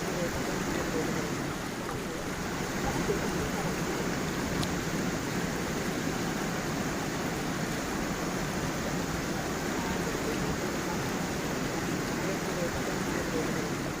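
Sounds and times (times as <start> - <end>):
stream flowing over small waterfall: 0.0 - 14.0.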